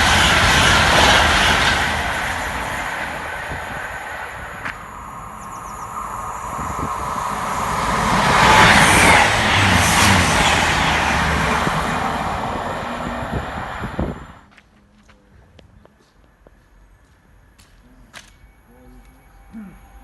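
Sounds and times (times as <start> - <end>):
fast train passing: 0.0 - 14.5.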